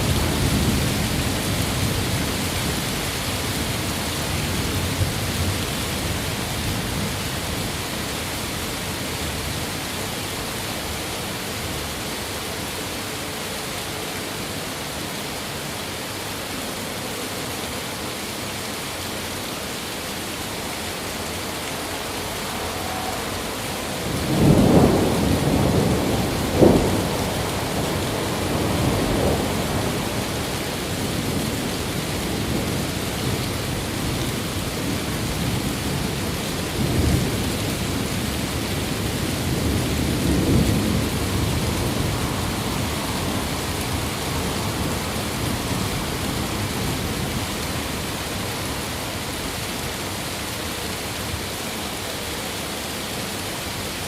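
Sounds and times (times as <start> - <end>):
steady rain: 0.0 - 54.0
thunder rolling: 21.8 - 31.5.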